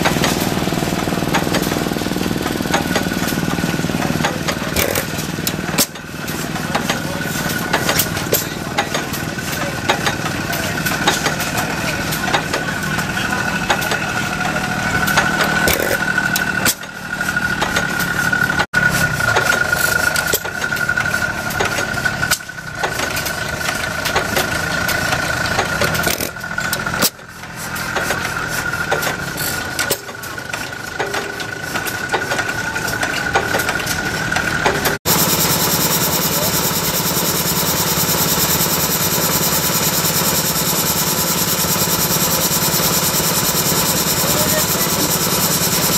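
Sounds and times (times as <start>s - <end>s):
stationary engines knocking and popping: 0.0s - 45.9s
steady high whine: 35.1s - 45.9s.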